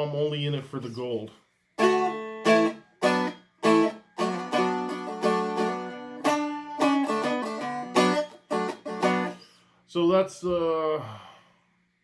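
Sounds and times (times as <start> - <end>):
dulcimer strummed and picked: 1.8 - 9.5.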